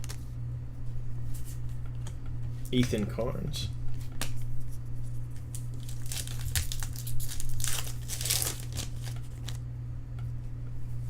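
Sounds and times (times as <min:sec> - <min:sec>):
plastic wrapper crinkling and tearing: 0:05.3 - 0:09.6.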